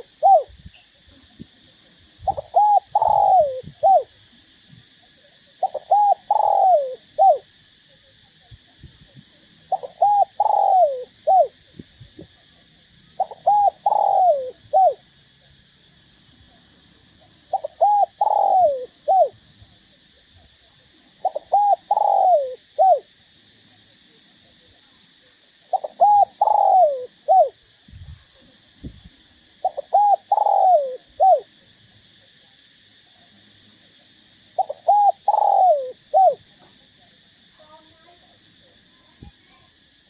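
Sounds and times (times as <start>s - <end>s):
dove cooing: 0.0s - 0.6s, 2.2s - 4.2s, 5.6s - 7.5s, 9.7s - 11.8s, 13.2s - 15.0s, 17.4s - 19.4s, 21.2s - 23.1s, 25.7s - 27.6s, 29.6s - 31.5s, 34.6s - 36.4s.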